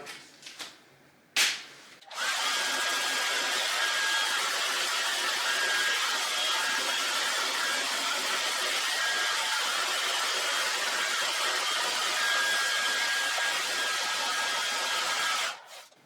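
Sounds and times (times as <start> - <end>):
heat gun running: 2.1 - 15.6.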